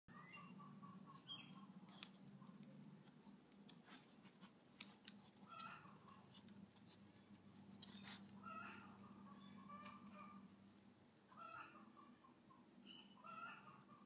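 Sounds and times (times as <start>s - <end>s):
low steady hum: 0.1s - 14.0s
faint bird calls: 8.0s - 10.5s.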